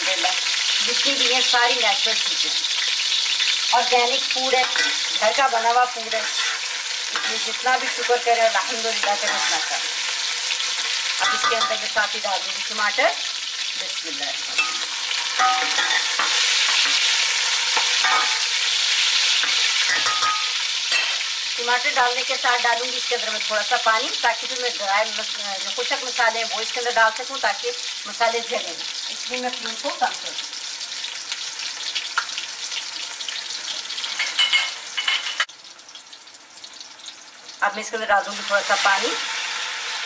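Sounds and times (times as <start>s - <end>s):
tomatoes sizzling in oil: 0.0s - 40.0s
metal spoon scraping pot: 4.5s - 5.2s, 6.1s - 8.0s, 8.6s - 9.9s, 14.5s - 17.1s
spoon clinking: 11.2s - 11.8s, 14.6s - 16.8s, 18.0s - 18.4s, 19.4s - 21.2s, 34.2s - 35.5s.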